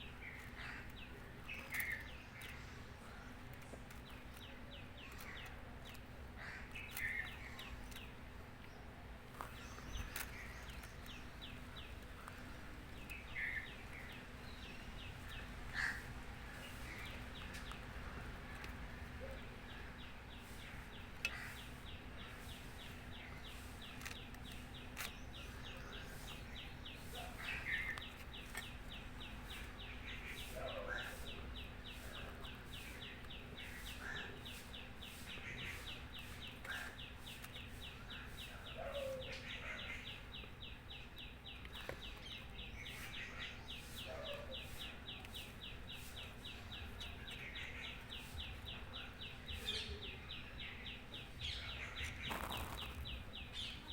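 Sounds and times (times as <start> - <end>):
short bird calls: 29.5 - 33.0, 33.6 - 40.1.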